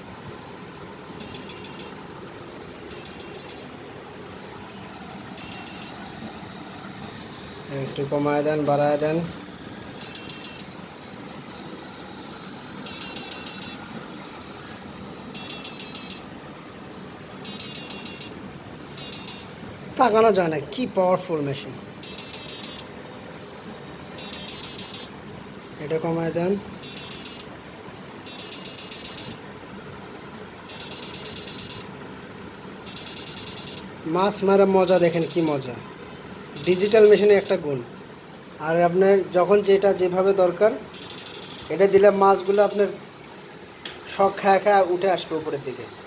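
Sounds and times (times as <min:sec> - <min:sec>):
inverter hum and whine: 0:00.0 - 0:46.0
high electrical buzz: 0:01.1 - 0:21.0, 0:40.1 - 0:45.8.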